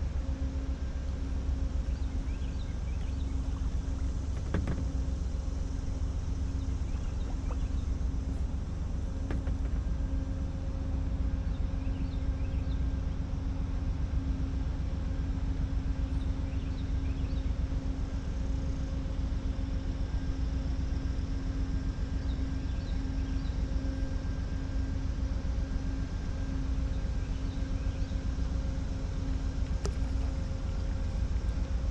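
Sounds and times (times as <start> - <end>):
light knock: 4.3 - 5.1, 9.2 - 9.9, 29.7 - 31.0.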